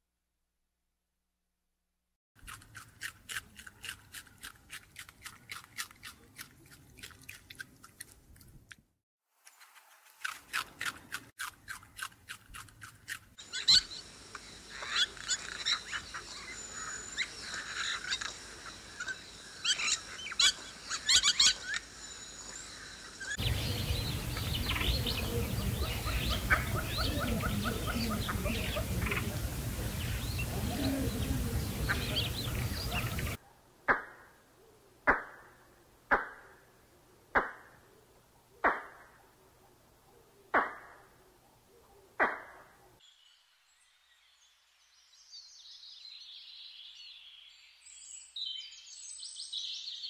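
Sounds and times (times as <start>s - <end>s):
rabbits chewing greens: 2.4s - 8.6s, 9.5s - 13.8s
outdoor background noise: 2.4s - 50.0s
high thin bird chirps: 12.8s - 29.2s.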